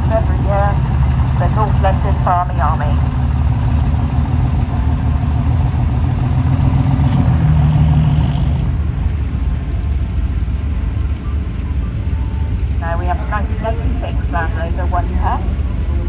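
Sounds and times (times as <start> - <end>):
tractor engine under load: 0.0 - 12.8.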